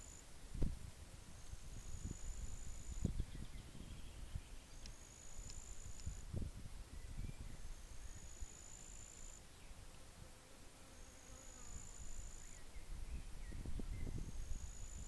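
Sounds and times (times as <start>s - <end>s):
faint bird chirps: 1.8s - 6.2s, 6.9s - 9.8s, 11.0s - 15.0s
wind rumble: 12.8s - 15.0s.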